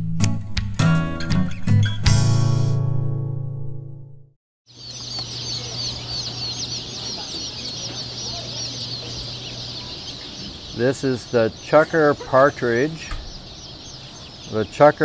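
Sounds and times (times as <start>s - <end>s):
partridges chirping: 4.7s - 15.0s.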